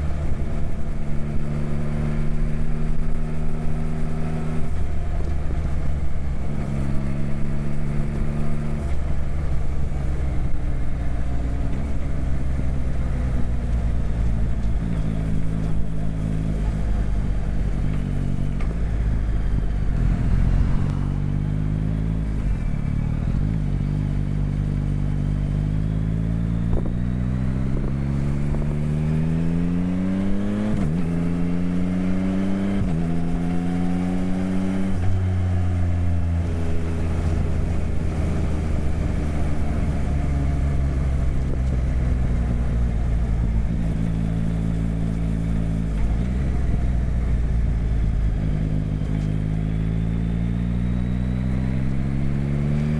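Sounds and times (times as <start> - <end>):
motorcycle engine accelerating: 0.0 - 52.9
wind noise: 26.3 - 31.4.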